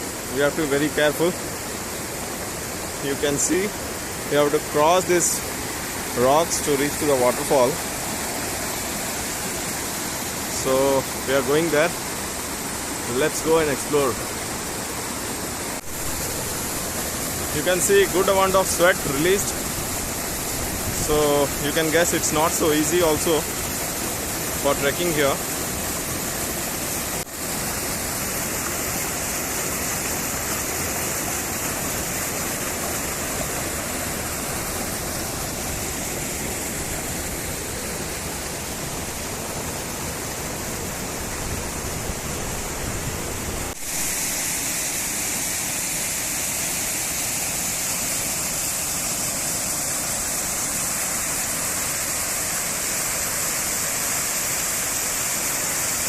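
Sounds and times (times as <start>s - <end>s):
waterfall splashing over rocks: 0.0s - 56.0s.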